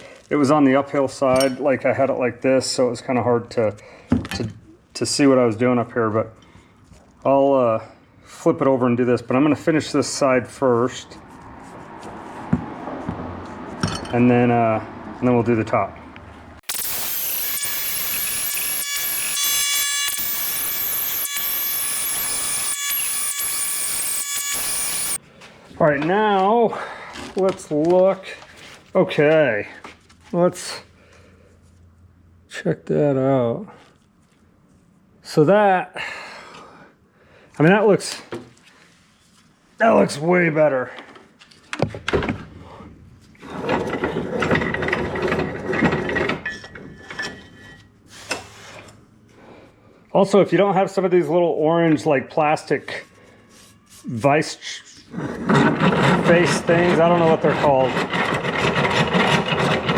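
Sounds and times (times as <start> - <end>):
die grinder grinding metal: 16.6 - 25.2, 55.4 - 59.9.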